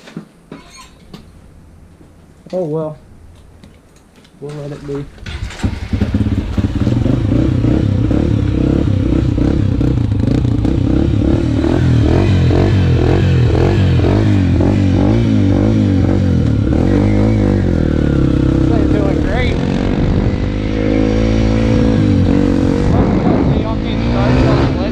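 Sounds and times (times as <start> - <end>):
dirt bike engine revving: 5.2 - 24.9.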